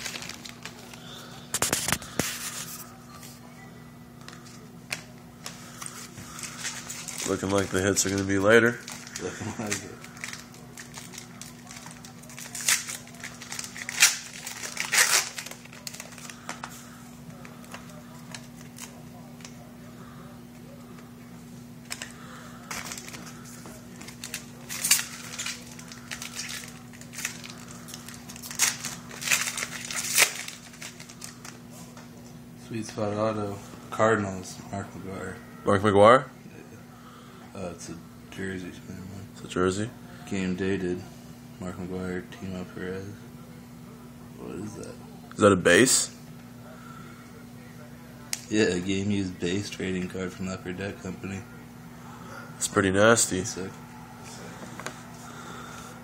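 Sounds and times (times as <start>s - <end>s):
cards and wrappers rustling: 0.0s - 3.0s, 4.2s - 19.7s, 21.8s - 32.0s
steady low hum: 0.0s - 56.0s.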